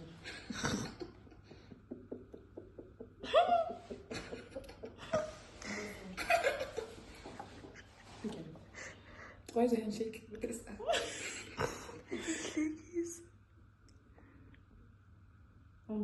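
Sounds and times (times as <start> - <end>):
people laughing: 0.2 - 8.2.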